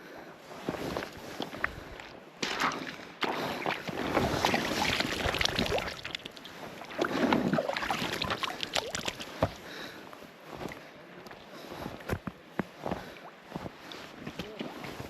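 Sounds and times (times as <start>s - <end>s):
water splashing and sloshing: 0.7s - 9.8s.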